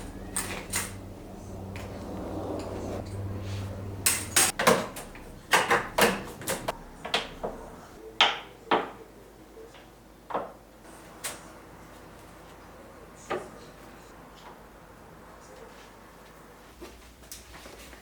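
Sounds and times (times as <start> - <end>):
low hum: 0.0 - 8.0
hard objects clicking and knocking: 4.1 - 7.6.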